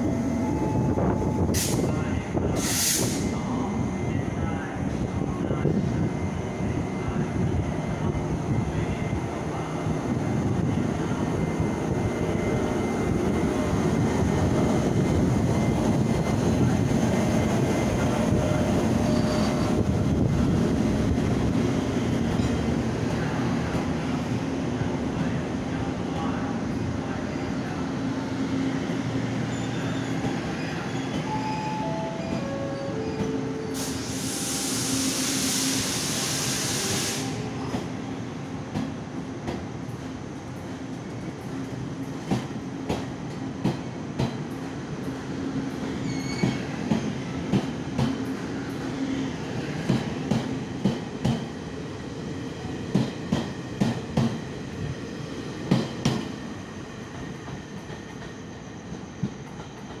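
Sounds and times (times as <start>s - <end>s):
loud air hiss: 1.4s - 3.4s, 33.6s - 37.4s.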